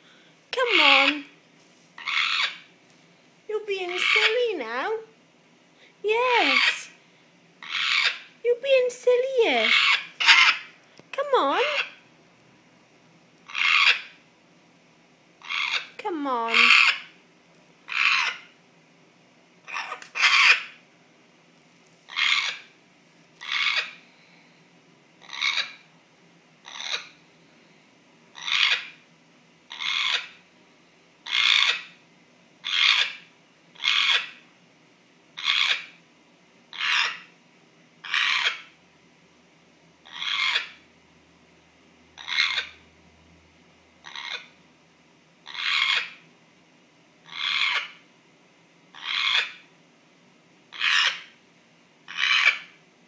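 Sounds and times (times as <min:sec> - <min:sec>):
parrot scratchy call: 0:00.6 - 0:01.3, 0:02.0 - 0:02.7, 0:03.8 - 0:04.4, 0:06.4 - 0:07.0, 0:07.6 - 0:08.3, 0:09.6 - 0:10.8, 0:13.4 - 0:14.2, 0:15.4 - 0:17.2, 0:17.9 - 0:18.5, 0:19.6 - 0:20.8, 0:22.1 - 0:22.7, 0:23.4 - 0:24.0, 0:25.2 - 0:25.8, 0:26.6 - 0:27.2, 0:28.3 - 0:29.0, 0:29.7 - 0:30.4, 0:31.2 - 0:32.0, 0:32.6 - 0:34.4, 0:35.4 - 0:36.0, 0:36.7 - 0:37.3, 0:38.0 - 0:38.7, 0:40.0 - 0:40.8, 0:42.2 - 0:42.8, 0:44.0 - 0:44.5, 0:45.4 - 0:46.2, 0:47.2 - 0:48.0, 0:48.9 - 0:49.6, 0:50.7 - 0:51.4, 0:52.0 - 0:52.8.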